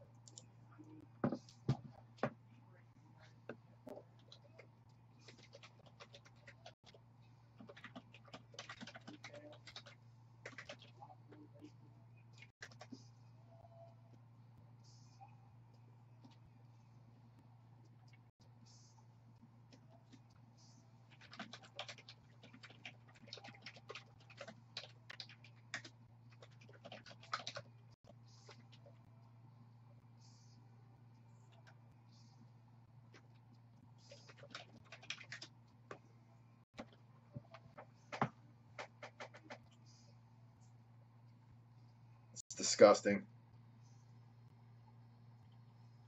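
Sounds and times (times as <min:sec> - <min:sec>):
low electrical hum: 0:00.0 - 0:46.0
typing on computer keyboard: 0:05.3 - 0:06.8, 0:07.6 - 0:11.0, 0:21.1 - 0:27.7, 0:34.1 - 0:35.5, 0:37.7 - 0:39.6
rapid irregular clicks: 0:07.6 - 0:11.1, 0:21.1 - 0:29.0.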